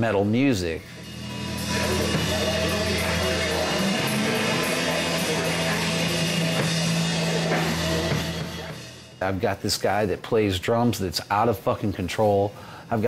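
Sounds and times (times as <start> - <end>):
heavy metal band playing: 0.9 - 9.2.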